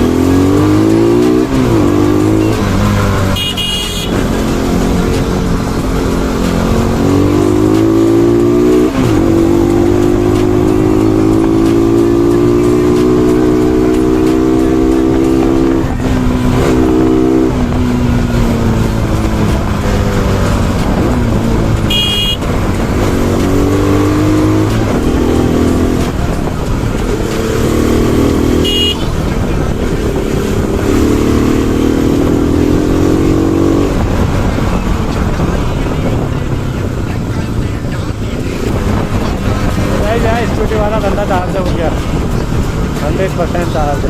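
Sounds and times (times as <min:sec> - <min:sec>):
motorcycle engine revving: 0:00.0 - 0:44.0
horn honking: 0:00.4 - 0:17.7, 0:21.0 - 0:26.4, 0:27.6 - 0:29.5.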